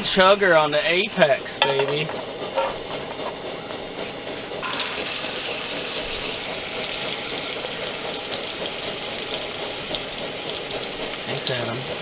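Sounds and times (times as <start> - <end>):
steak sizzling in a pan: 4.6 - 12.0.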